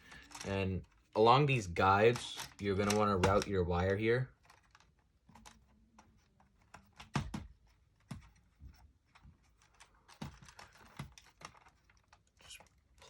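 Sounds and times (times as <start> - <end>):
plastic laptop parts clicking: 2.0 - 3.5, 4.3 - 13.0.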